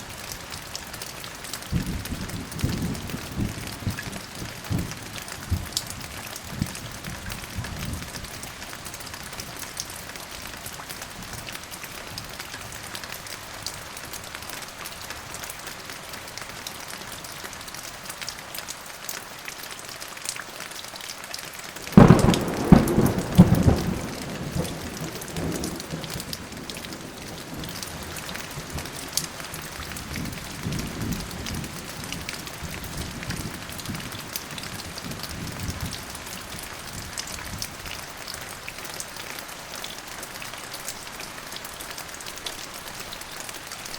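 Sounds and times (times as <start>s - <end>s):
steady rain: 0.0s - 43.9s
thunder: 1.7s - 5.8s, 22.0s - 29.0s.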